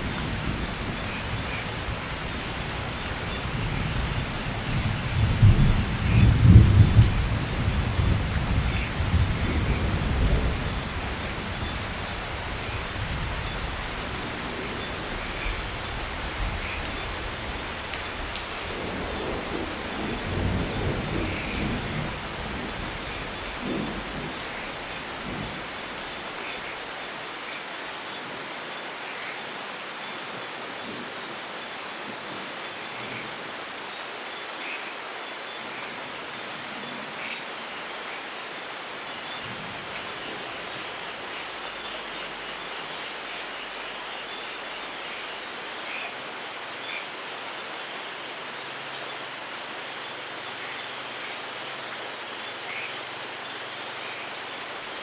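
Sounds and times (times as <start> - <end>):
thunder rumbling: 0.0 - 26.3
steady rainfall: 0.0 - 55.0.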